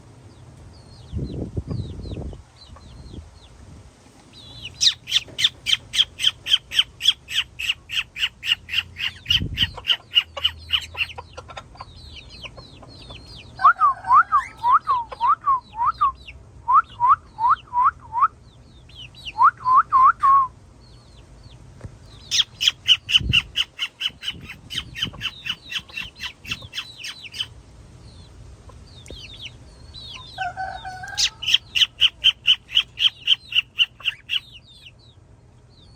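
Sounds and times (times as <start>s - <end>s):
cockatiels chirping: 4.4s - 13.7s, 22.2s - 27.5s, 29.0s - 35.0s
cockatiels squawking: 4.6s - 12.6s, 22.2s - 27.5s, 29.1s - 34.8s.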